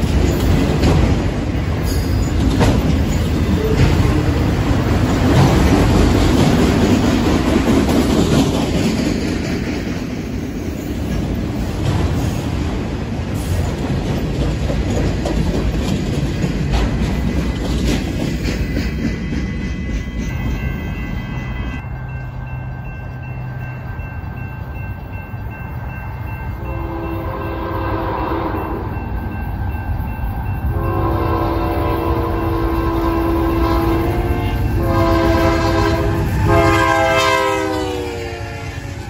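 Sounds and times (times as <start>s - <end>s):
wheels clicking over rail joints: 0.0s - 20.9s
locomotive air horn blasts: 26.6s - 28.9s, 30.8s - 39.0s.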